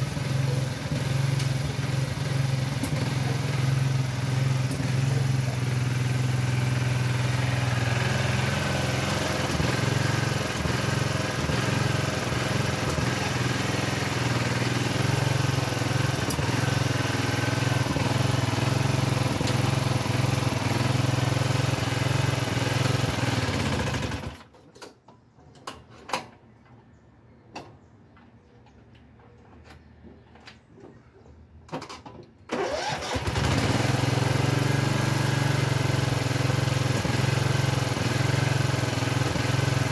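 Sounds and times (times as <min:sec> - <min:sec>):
small tractor engine running: 0:00.0 - 0:24.5, 0:32.5 - 0:39.9.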